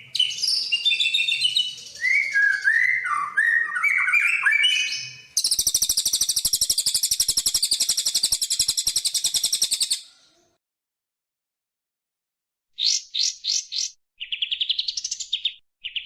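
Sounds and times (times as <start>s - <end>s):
songbird whistled notes: 0.1s - 10.1s
high buzzy bird trill: 2.5s - 10.0s.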